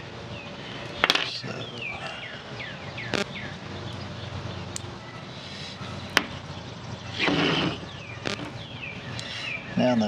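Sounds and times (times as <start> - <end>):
knife scraping cable insulation: 7.2 - 8.6.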